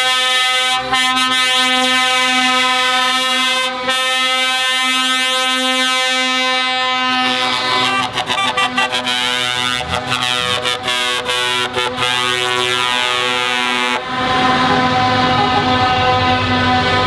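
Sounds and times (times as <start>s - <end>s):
truck air horn blast: 0.0s - 17.0s.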